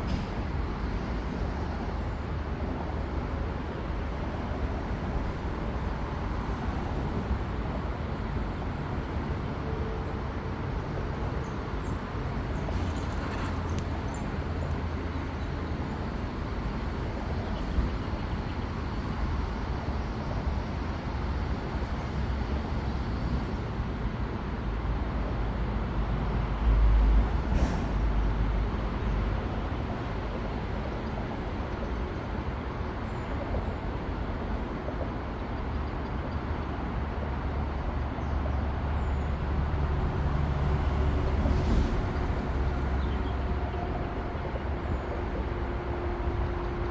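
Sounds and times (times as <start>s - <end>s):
vehicle rumble: 35.8s - 46.9s.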